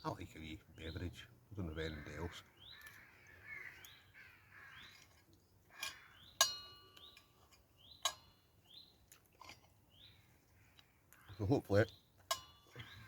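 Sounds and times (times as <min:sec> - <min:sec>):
small bird chirping: 0:00.5 - 0:09.2, 0:09.8 - 0:13.0
cutlery clinking on cookware: 0:08.0 - 0:08.4, 0:12.3 - 0:12.7.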